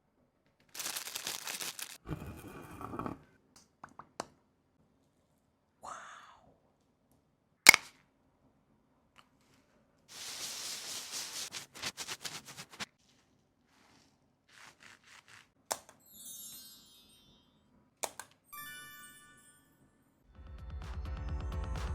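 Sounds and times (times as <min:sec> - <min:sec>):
packaging rustling: 0:00.7 - 0:02.0, 0:10.1 - 0:13.0
high ringing chime: 0:16.1 - 0:17.6, 0:18.5 - 0:20.1.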